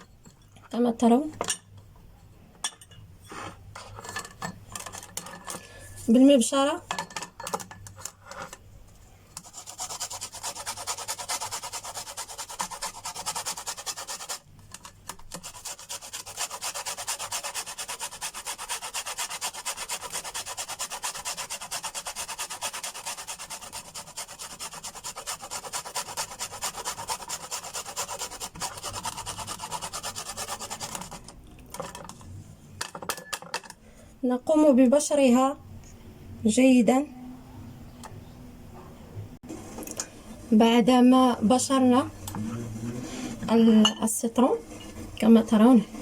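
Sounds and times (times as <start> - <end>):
lemon grating on hand grater: 9.4 - 31.3.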